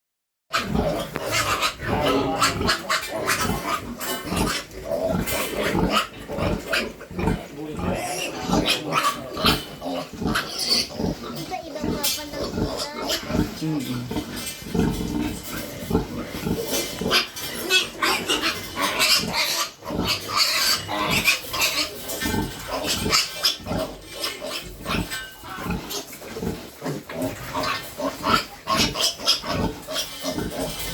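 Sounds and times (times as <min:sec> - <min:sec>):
piglets calling: 0:00.5 - 0:15.1
piglets squealing and grunting: 0:00.5 - 0:30.9.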